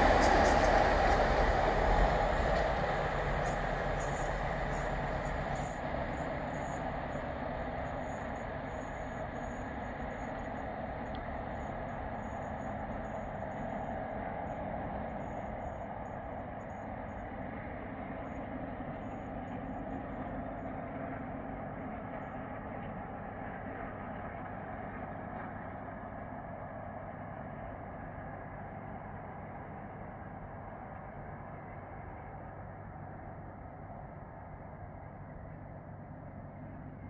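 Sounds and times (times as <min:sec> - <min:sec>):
passenger train rumbling: 0:00.0 - 0:37.0.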